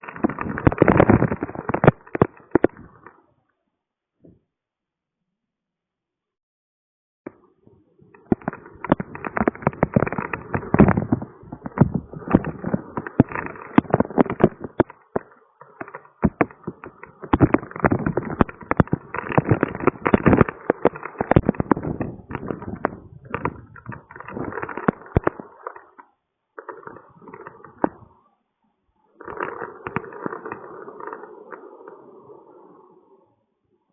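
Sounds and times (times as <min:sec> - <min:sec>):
heavy rain drops crackling: 0:00.0 - 0:03.1, 0:08.2 - 0:25.8.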